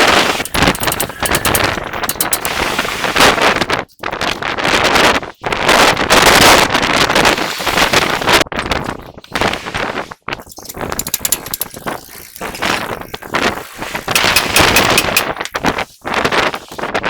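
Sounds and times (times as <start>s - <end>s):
rapid mechanical rattling of tool: 0.0s - 3.4s, 10.4s - 16.9s.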